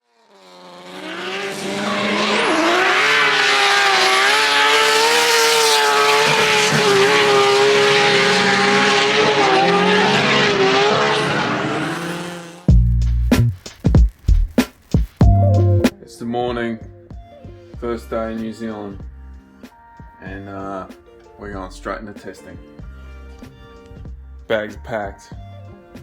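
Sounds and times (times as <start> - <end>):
car engine at high revs: 0.0 - 12.7.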